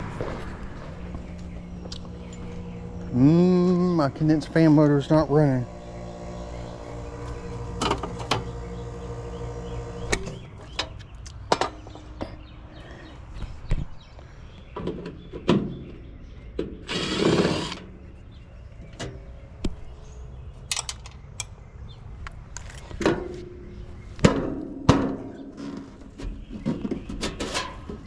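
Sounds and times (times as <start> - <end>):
power driver whirring: 1.9 - 10.5, 16.9 - 17.8
tools and metal parts clicking: 20.7 - 21.6.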